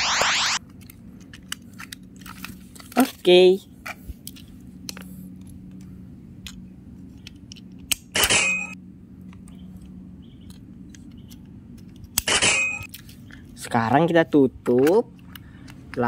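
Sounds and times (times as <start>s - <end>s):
faint handling clicks: 14.6s - 16.0s.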